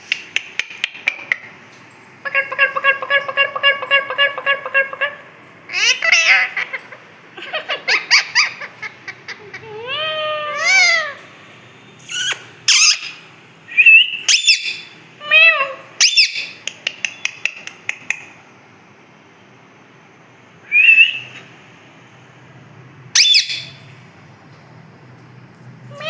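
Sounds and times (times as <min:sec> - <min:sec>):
parrot chattering and squeaking: 0:02.2 - 0:11.2, 0:12.0 - 0:13.2, 0:14.3 - 0:18.3, 0:23.2 - 0:23.8
parrot whistled calls: 0:12.0 - 0:16.6, 0:20.7 - 0:21.4, 0:23.2 - 0:23.8
parrot squawks: 0:12.1 - 0:13.2, 0:14.3 - 0:16.6, 0:23.2 - 0:23.8.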